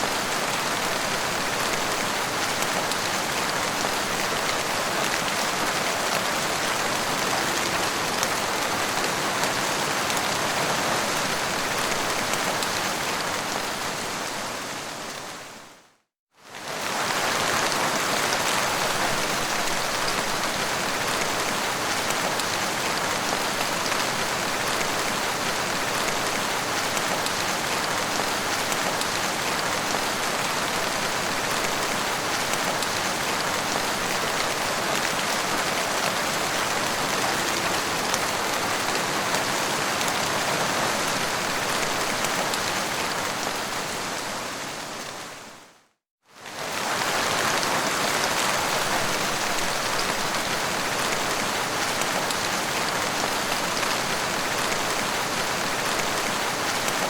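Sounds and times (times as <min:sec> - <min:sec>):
rain pattering: 0:16.6 - 0:44.3, 0:46.5 - 0:57.0.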